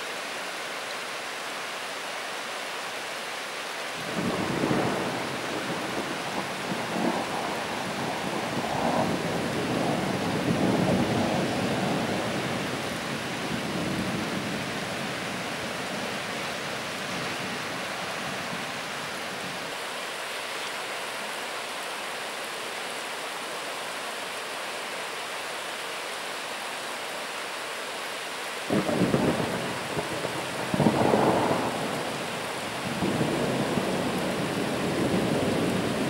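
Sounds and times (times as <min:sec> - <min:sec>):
steady rain: 0:00.0 - 0:36.0
thunder rolling: 0:28.7 - 0:32.0.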